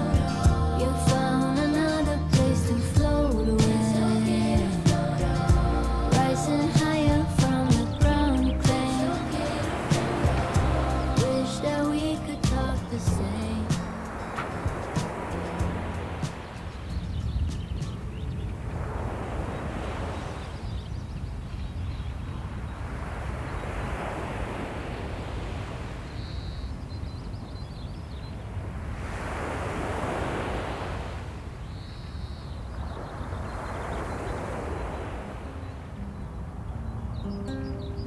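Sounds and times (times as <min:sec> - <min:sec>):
low rumble of surf: 0:00.0 - 0:38.0
wind: 0:00.0 - 0:38.0
small waves washing on beach: 0:03.6 - 0:17.0, 0:18.6 - 0:20.8, 0:22.5 - 0:26.2, 0:28.6 - 0:31.7, 0:32.7 - 0:36.0.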